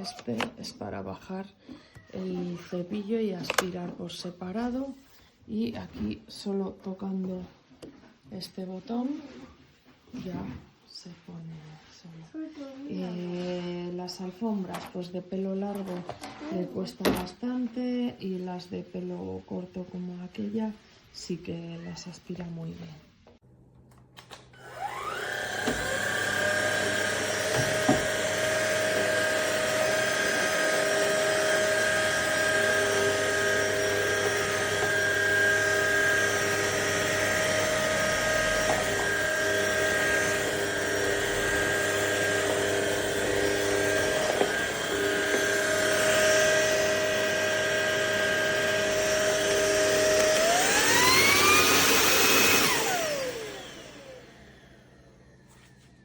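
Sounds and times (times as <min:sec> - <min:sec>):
vacuum cleaner motor whine: 0:24.6 - 0:56.0.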